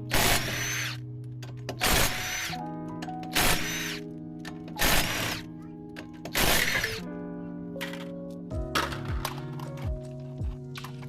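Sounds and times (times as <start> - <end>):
background music: 0.0 - 11.0
impact wrench whining: 0.1 - 1.0, 1.8 - 2.6, 3.3 - 4.0, 4.8 - 5.4, 6.3 - 7.0.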